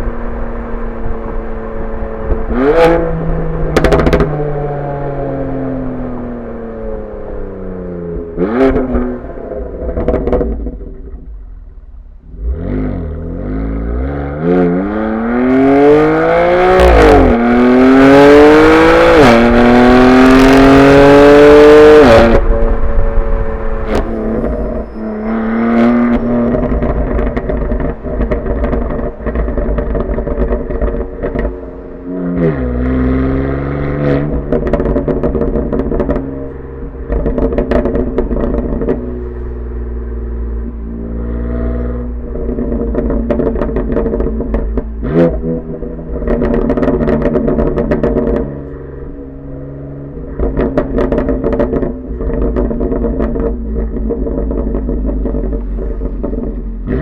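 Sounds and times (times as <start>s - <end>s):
car engine accelerating hard: 0.0s - 11.3s, 12.3s - 57.0s
exhaust pops and crackles: 3.6s - 4.4s, 9.8s - 12.2s, 22.0s - 32.7s, 34.0s - 57.0s.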